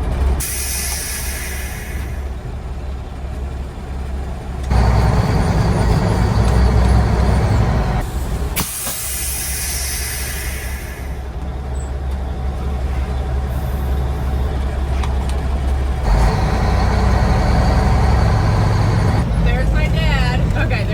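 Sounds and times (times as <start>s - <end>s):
diesel truck engine rumbling: 0.0s - 20.9s
loud hiss: 0.4s - 2.2s, 8.6s - 11.2s.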